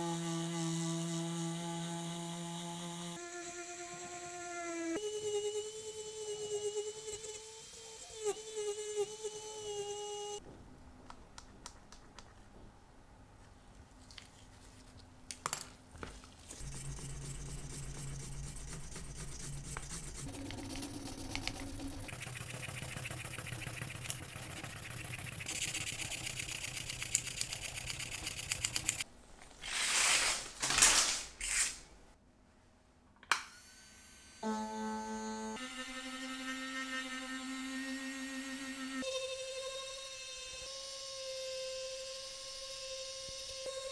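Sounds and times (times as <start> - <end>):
rotary tool whining: 16.5 - 29.0.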